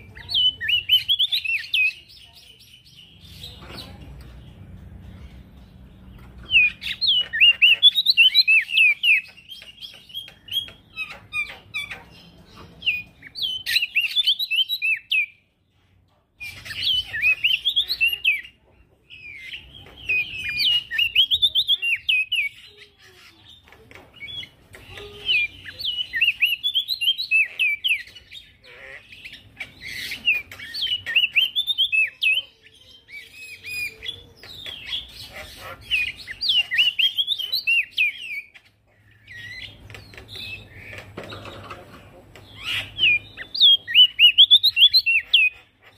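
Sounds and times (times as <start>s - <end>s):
bird chirping rapidly: 0.0s - 15.4s, 16.4s - 45.9s.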